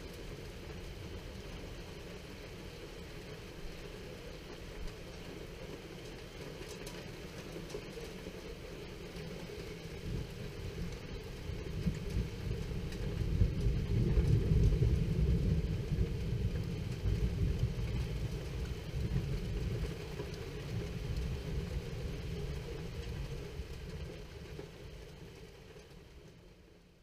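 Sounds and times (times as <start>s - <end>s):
rain hiss: 0.0s - 27.0s
thunder rumble: 9.9s - 25.5s.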